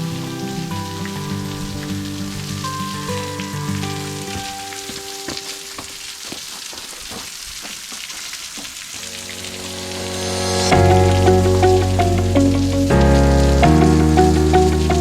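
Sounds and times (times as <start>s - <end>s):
soft music of slow held notes: 0.0s - 5.8s, 9.0s - 15.0s
crackling hiss with ticks: 0.0s - 15.0s.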